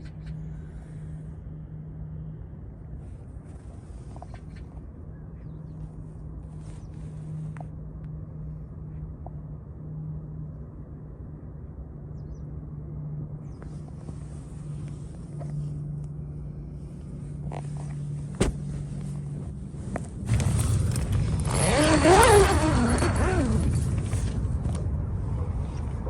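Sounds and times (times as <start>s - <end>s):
motor vehicle passing by: 12.2s - 26.0s.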